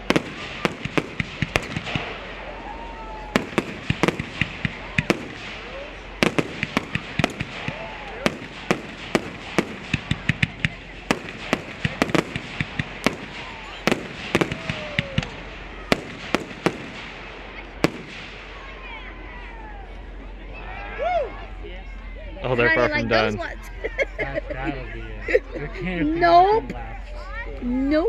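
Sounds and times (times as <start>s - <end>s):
fireworks bangs and cracks: 0.0s - 19.1s.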